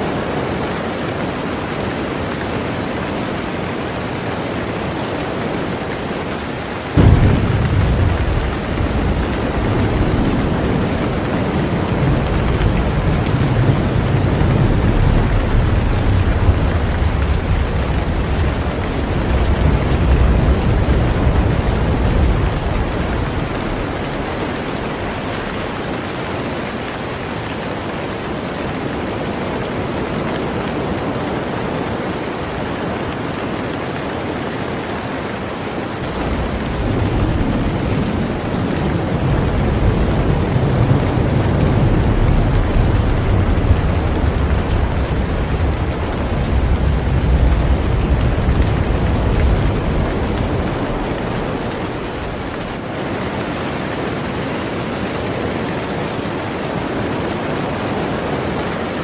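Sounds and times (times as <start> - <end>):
heavy rain on a boat: 0.0 - 59.0
deep low rumble: 7.0 - 25.7, 36.2 - 52.8.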